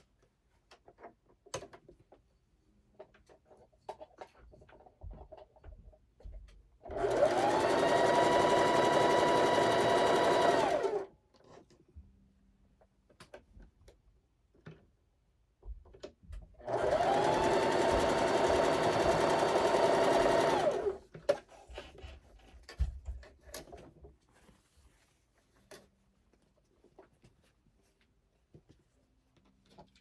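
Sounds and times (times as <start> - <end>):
sewing machine stitching: 6.8 - 11.1, 16.6 - 21.0.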